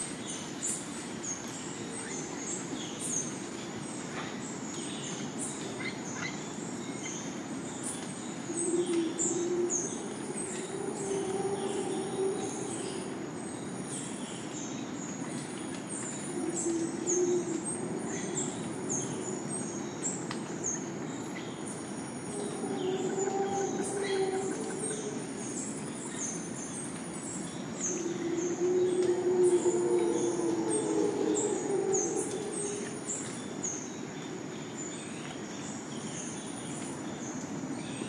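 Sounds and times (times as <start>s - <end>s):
howler monkeys roaring: 8.5s - 13.5s, 16.2s - 19.9s, 22.0s - 26.2s, 27.6s - 33.3s.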